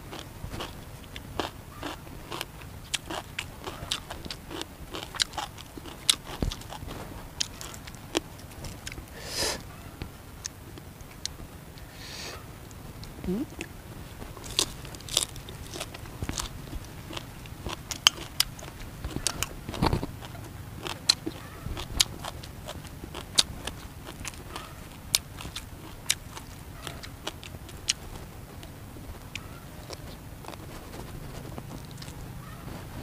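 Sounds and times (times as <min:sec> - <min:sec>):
man chewing crunchy food: 0:00.0 - 0:09.7, 0:12.7 - 0:33.0.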